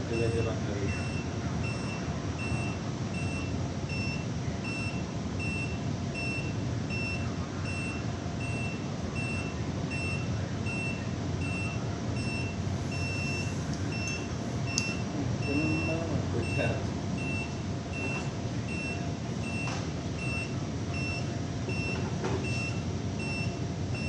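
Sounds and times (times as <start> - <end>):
electronic alarm beeping: 0.1 - 24.0.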